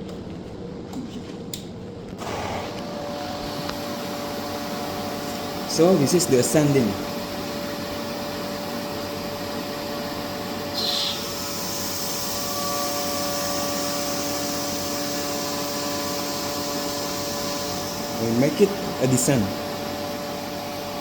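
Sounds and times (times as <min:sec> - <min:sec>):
vacuum pump humming and whining: 0:00.0 - 0:21.0.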